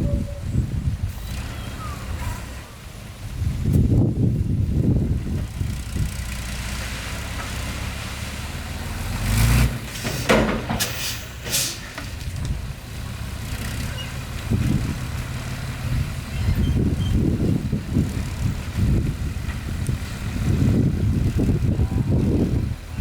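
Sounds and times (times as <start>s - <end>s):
diesel truck engine running: 0.0s - 23.0s
short air hisses: 10.0s - 12.0s.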